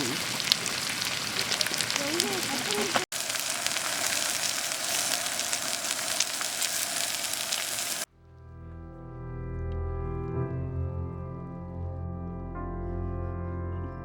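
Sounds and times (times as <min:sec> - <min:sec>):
food sizzling: 0:00.0 - 0:08.1
music with low sustained notes: 0:08.1 - 0:14.0.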